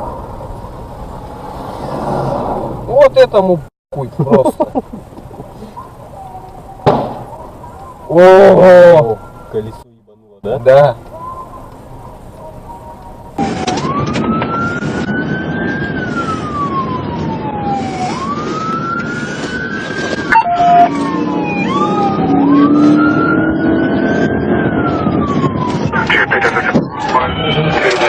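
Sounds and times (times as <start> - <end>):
engine and road noise: 0.0 - 28.0
emergency siren wailing: 7.6 - 9.7, 11.1 - 28.0.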